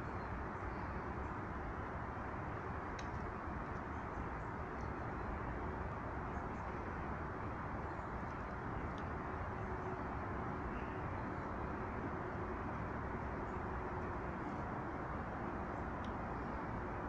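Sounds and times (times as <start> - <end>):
outdoor background rumble: 0.0 - 17.0
faint bird chirps: 10.7 - 11.7.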